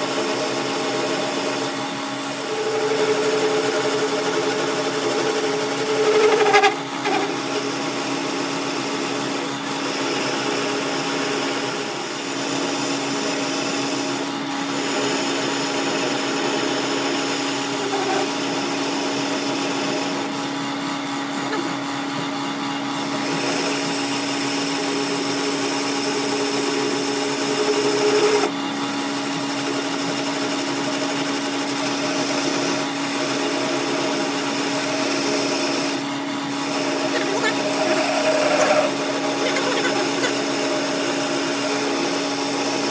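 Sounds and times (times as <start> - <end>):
power tool whining on metal: 0.0 - 42.9.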